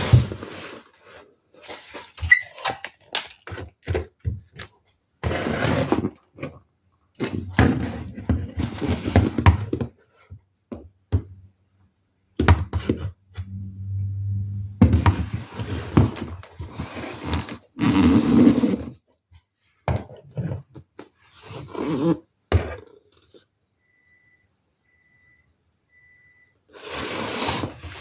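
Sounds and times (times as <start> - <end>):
low hum: 13.3 - 15.9.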